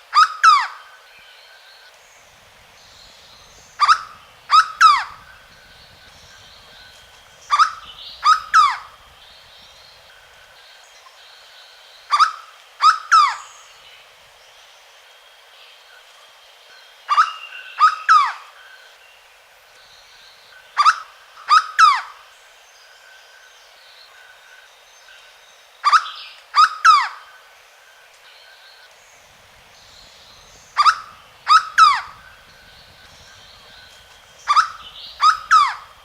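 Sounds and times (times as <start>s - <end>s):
faint steady high tones: 27.4s - 36.0s.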